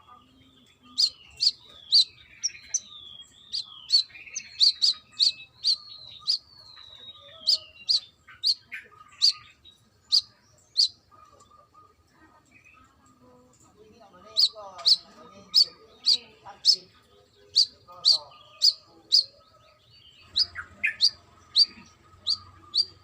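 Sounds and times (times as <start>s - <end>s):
bird chirping and whistling: 0.9s - 9.5s, 10.1s - 10.9s, 20.3s - 23.0s.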